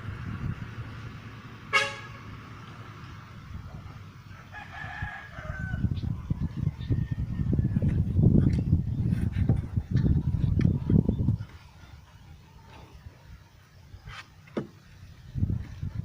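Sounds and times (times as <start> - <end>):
rooster crowing: 4.3 - 7.8.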